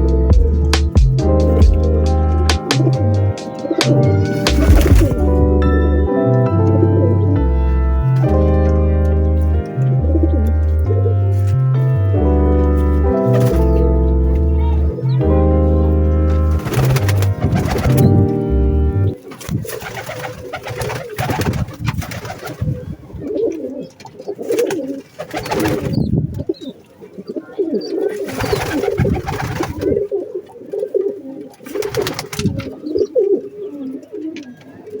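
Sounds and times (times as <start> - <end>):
pigeons cooing: 1.6 - 5.3, 19.6 - 35.0.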